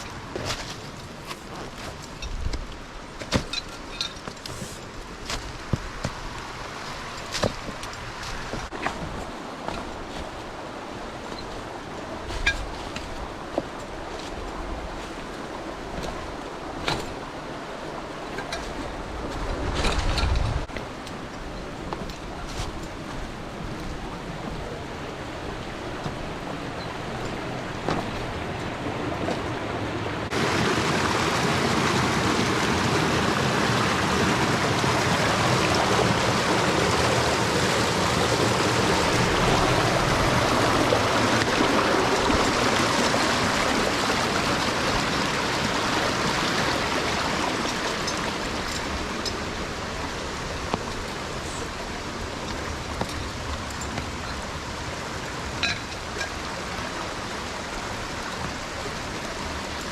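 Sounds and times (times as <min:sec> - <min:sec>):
mountain stream water rushing: 0:00.0 - 0:59.9.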